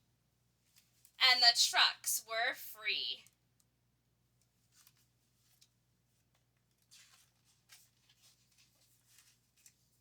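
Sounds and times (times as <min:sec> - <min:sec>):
paper rustling: 0:06.7 - 0:10.0.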